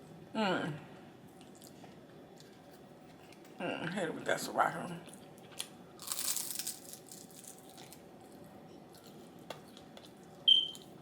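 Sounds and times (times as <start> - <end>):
packaging crinkling and tearing: 6.0 - 8.0.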